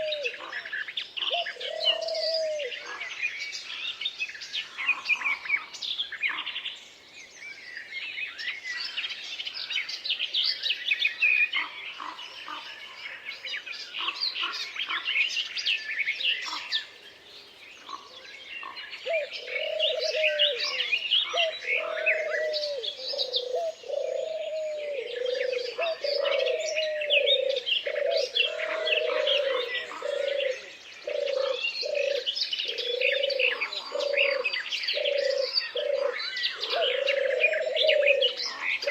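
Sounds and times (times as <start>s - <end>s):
low cooing call: 0.0s - 0.4s, 1.3s - 3.0s, 19.0s - 38.9s
songbirds chirping and trilling: 0.0s - 38.9s.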